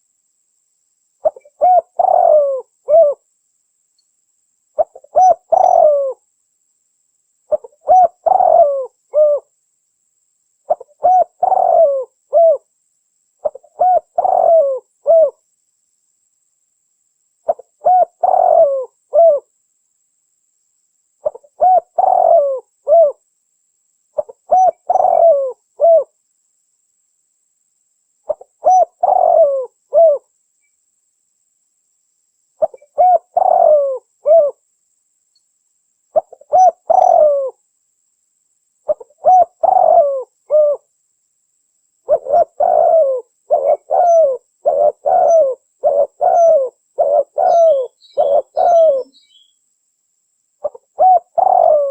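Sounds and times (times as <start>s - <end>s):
dove cooing: 1.2s - 3.2s, 4.8s - 6.2s, 7.5s - 9.5s, 10.7s - 12.7s, 13.4s - 15.4s, 17.5s - 19.5s, 21.2s - 23.2s, 24.2s - 26.1s, 28.3s - 30.3s, 32.6s - 34.6s, 36.2s - 37.6s, 38.9s - 40.9s, 42.0s - 49.5s, 50.6s - 51.9s.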